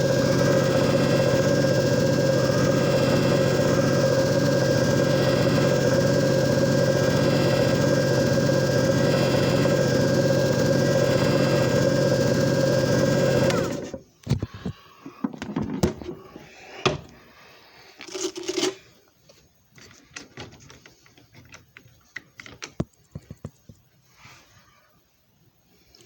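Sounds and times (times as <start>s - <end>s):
machine motor humming and whirring: 0.0s - 14.0s
clicks knocks and rattles: 19.8s - 23.8s.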